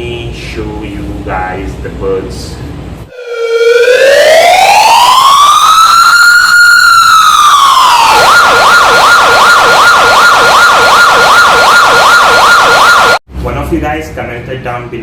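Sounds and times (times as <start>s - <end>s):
electronic siren wailing and yelping: 3.1s - 13.2s.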